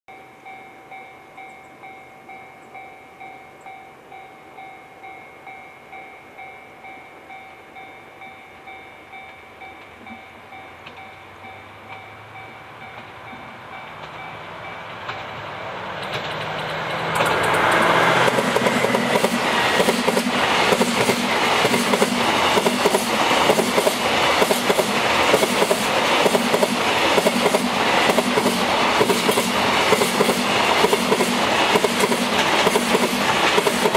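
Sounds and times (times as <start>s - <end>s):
level crossing warning bell: 0.1s - 14.9s
diesel locomotive engine: 7.2s - 33.9s
train wheels clattering: 12.8s - 33.9s.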